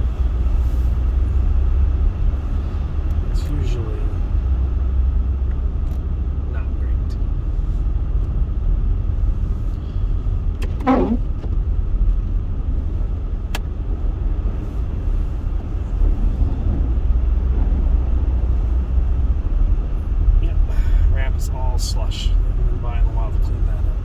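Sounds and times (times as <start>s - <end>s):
car driving on snowy road: 0.0s - 24.0s
short falling squeak: 10.7s - 11.3s.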